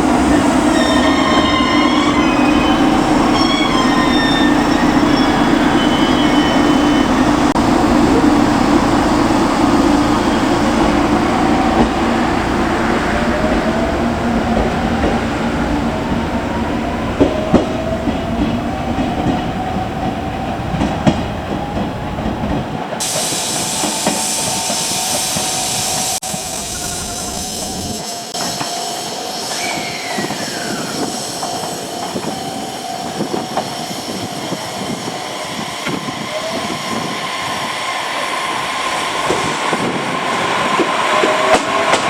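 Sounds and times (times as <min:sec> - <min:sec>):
train rumbling on rails: 0:00.0 - 0:42.0
bright hiss: 0:23.0 - 0:32.6
rising whine: 0:25.6 - 0:28.3.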